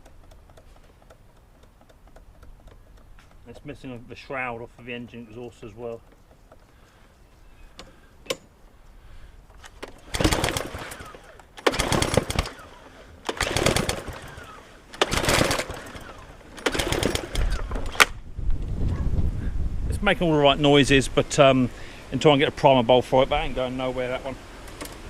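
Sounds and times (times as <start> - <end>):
lawn mower engine pull-start cranking: 0.0 - 7.1, 9.4 - 18.3, 24.6 - 25.0.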